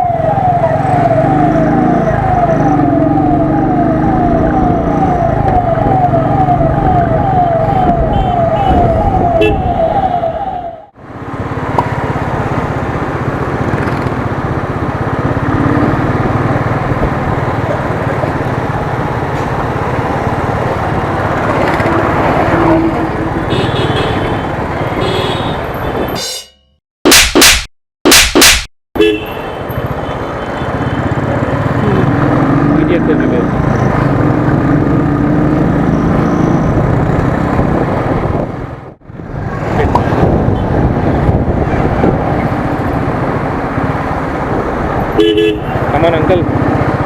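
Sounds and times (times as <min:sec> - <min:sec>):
ambulance siren wailing: 0:00.0 - 0:11.0
traffic noise: 0:00.0 - 0:47.0
wind noise: 0:06.7 - 0:10.0, 0:36.8 - 0:45.2.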